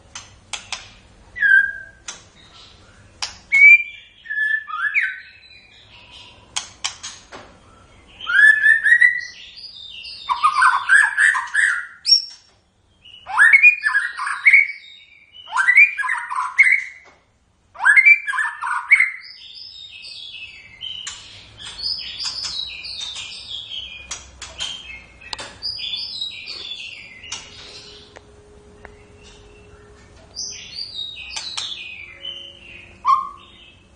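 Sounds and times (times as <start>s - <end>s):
bird twittering: 0.5s - 6.6s, 7.6s - 12.4s, 17.8s - 28.2s, 28.8s - 33.9s
bird singing whistled phrases: 1.4s - 2.1s, 3.5s - 5.5s, 7.7s - 9.4s, 13.1s - 17.0s, 17.8s - 19.8s, 29.1s - 33.8s.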